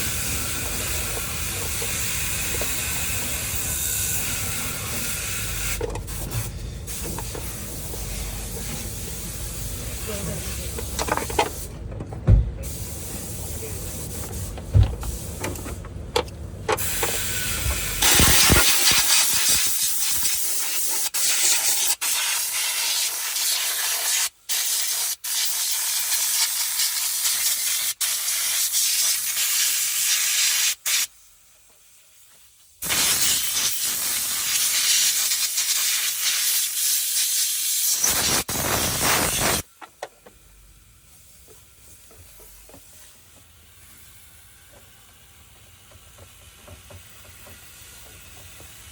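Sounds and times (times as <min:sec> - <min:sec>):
pressurised spray hissing from nozzle: 0:00.0 - 0:11.6, 0:12.6 - 0:15.4, 0:16.8 - 0:31.1, 0:32.8 - 0:39.6.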